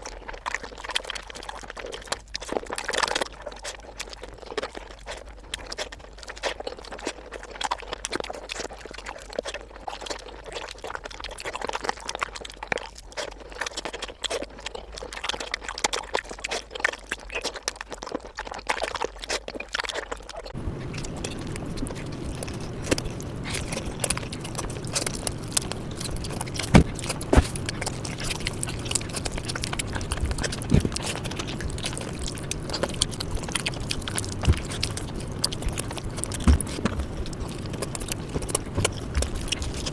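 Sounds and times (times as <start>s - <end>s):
wet chewing and lip smacks: 0.0s - 39.9s
low hum: 20.6s - 39.9s.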